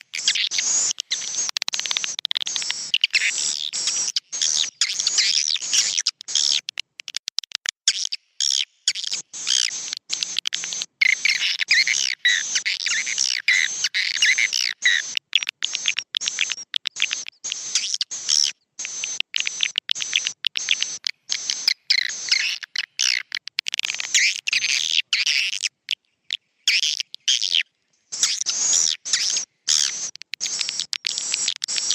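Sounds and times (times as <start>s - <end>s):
swiftlets twittering: 0.0s - 6.6s, 9.1s - 24.8s.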